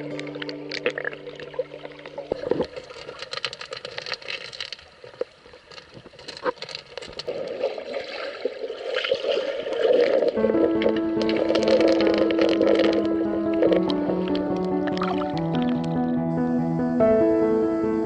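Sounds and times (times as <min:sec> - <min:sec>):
water splashing and gurgling: 0:00.0 - 0:17.2
song held note: 0:10.4 - 0:18.0.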